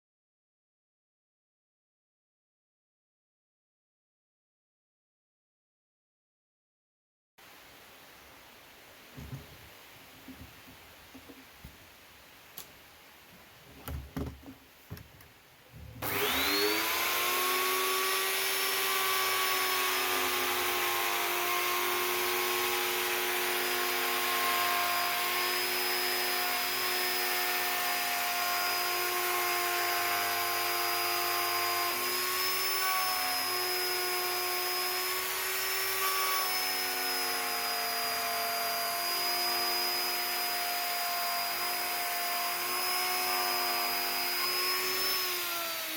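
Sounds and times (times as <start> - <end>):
electric power tool whining: 16.0 - 45.9.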